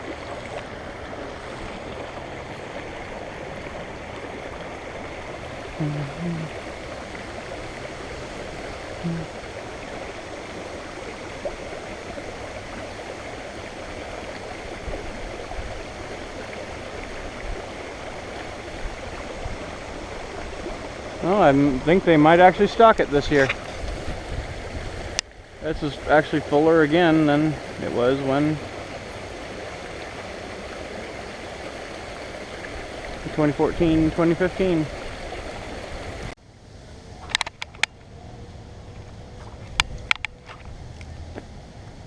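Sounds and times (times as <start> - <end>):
creek water rushing over rocks: 0.0 - 42.0.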